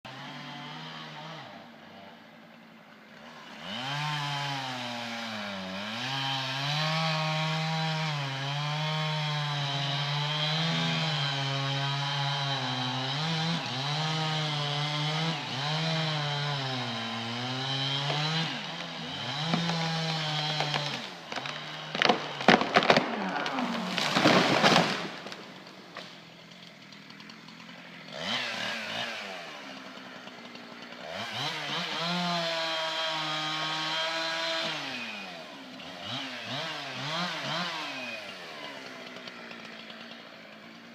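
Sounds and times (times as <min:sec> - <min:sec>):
chainsaw cutting tree: 0:00.0 - 0:40.9
sharp wood cracks: 0:17.6 - 0:31.8.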